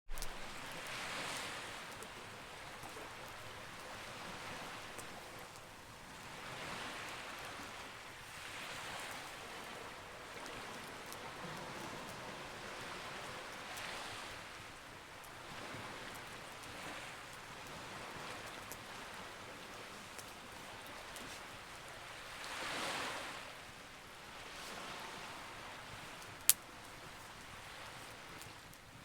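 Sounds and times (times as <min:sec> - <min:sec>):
faint campfire crackles: 0:00.1 - 0:29.0
sea waves washing in: 0:00.1 - 0:29.0.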